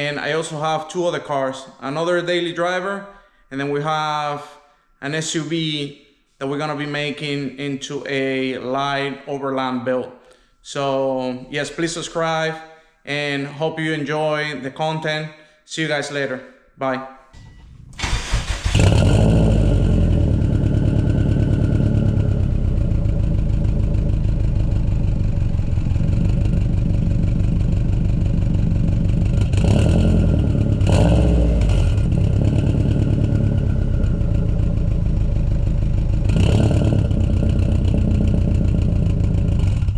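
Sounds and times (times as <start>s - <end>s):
car engine idling with revving blips: 17.4s - 39.9s.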